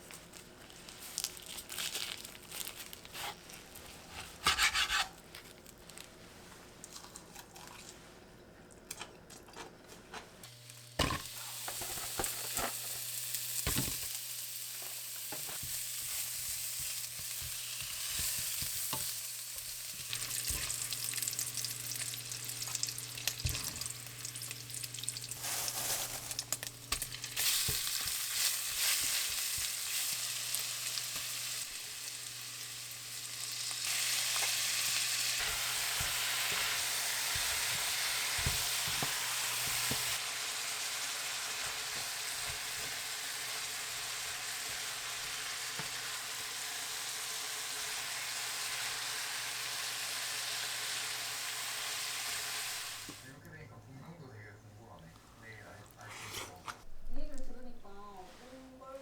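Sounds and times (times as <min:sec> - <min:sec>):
utensil stirring in a pan: 0:02.5 - 0:05.6, 0:14.7 - 0:31.9, 0:33.8 - 0:46.4
food sizzling in a pan: 0:10.4 - 0:53.3.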